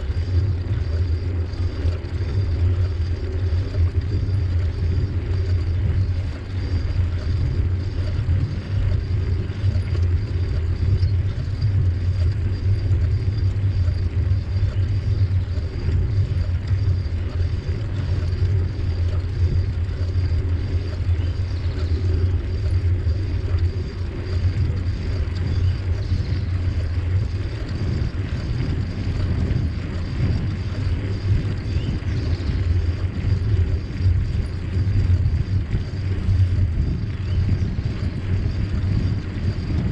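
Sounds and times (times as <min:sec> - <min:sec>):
bicycle tyres rolling on trail: 0:00.0 - 0:39.9
wind buffeting microphone: 0:00.0 - 0:39.9.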